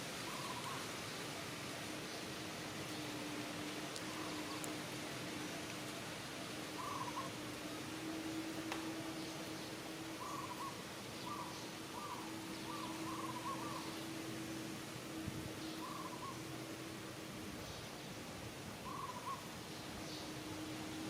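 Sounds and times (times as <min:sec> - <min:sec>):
steady low hum: 0:02.3 - 0:21.0
short wavering animal calls: 0:05.4 - 0:17.1, 0:18.8 - 0:19.6.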